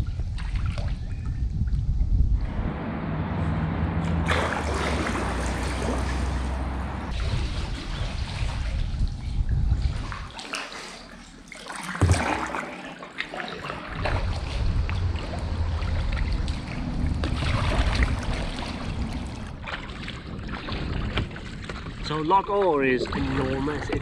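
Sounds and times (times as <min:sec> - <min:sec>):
water splashing and trickling: 0:00.0 - 0:01.7, 0:02.6 - 0:24.0
wind rumble on microphone: 0:00.0 - 0:10.4, 0:13.8 - 0:24.0.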